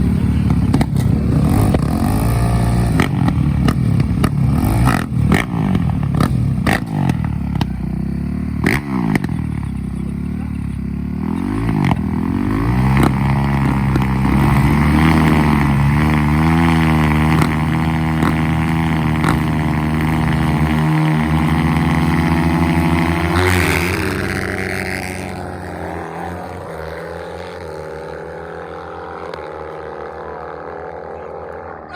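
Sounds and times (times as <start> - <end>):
dirt bike engines revving: 0.0 - 31.9.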